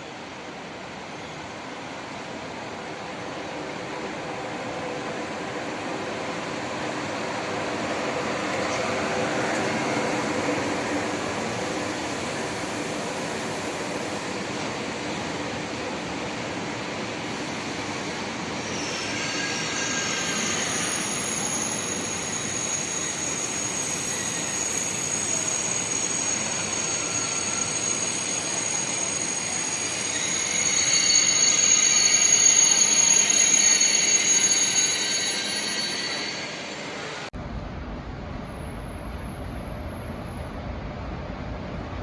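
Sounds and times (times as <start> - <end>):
high-pitched squeal: 18.6 - 36.9
train rumble: 37.3 - 42.0.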